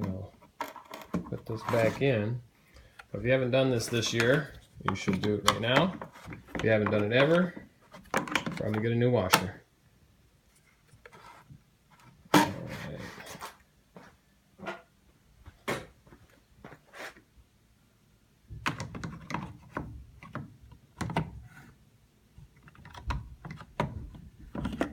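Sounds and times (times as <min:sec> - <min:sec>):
plastic rattles: 0:22.6 - 0:24.9.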